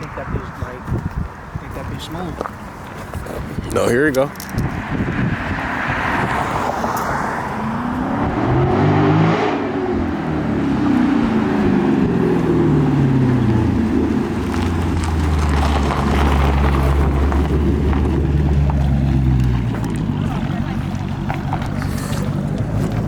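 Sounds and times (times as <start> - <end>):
car engine accelerating hard: 4.6 - 23.0.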